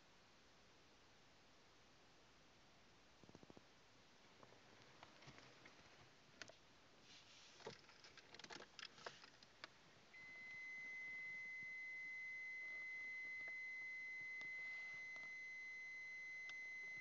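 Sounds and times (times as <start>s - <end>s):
faint clicks and rustling: 3.2s - 11.8s.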